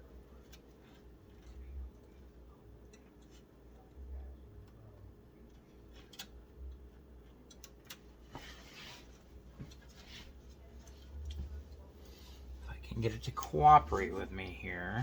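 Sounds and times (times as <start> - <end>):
plastic cables rustling: 0.0 - 4.0
cable clicks: 5.4 - 8.2.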